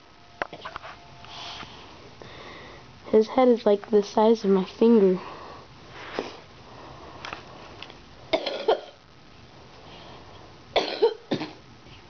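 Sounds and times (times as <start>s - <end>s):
person coughing: 8.3s - 9.0s, 10.8s - 11.6s.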